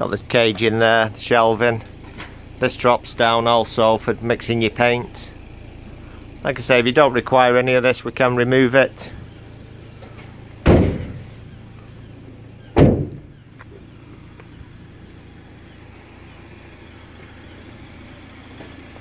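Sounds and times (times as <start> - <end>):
van engine humming: 0.0 - 19.0
loud metal door slams: 10.6 - 11.3, 12.7 - 13.4.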